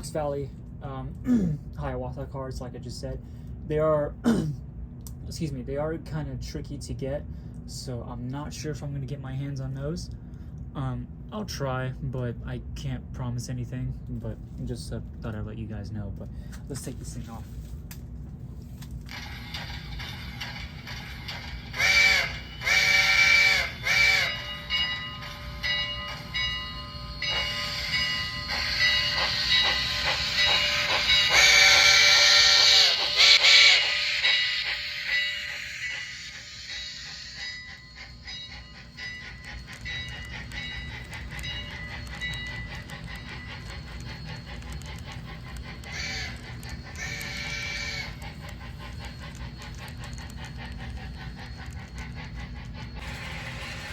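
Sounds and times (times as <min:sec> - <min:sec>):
model locomotive hissing chuff: 0:19.1 - 0:53.9.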